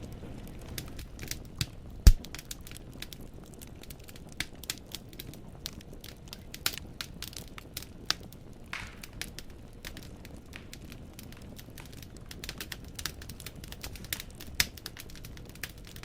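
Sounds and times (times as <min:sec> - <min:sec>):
logs crackling and popping: 0:00.0 - 0:16.0
low rumble of flames: 0:00.0 - 0:16.0.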